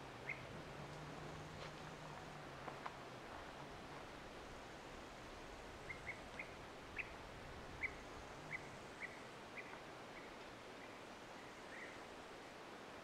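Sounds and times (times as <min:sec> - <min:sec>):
faint steady hiss: 0:00.0 - 0:13.0
bird chirping: 0:00.2 - 0:00.5.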